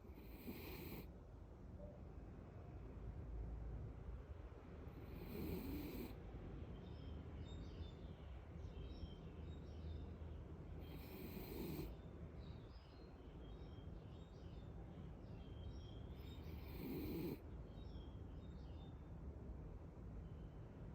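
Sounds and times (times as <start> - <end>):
pet snoring: 0.0 - 1.1, 5.0 - 6.2, 10.8 - 11.9, 16.4 - 17.4
faint bird chirps: 6.7 - 19.2.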